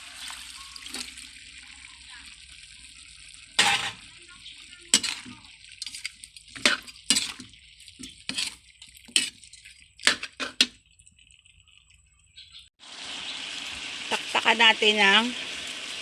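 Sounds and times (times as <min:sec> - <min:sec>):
metal utensil knocking on pot: 0:10.1 - 0:10.8.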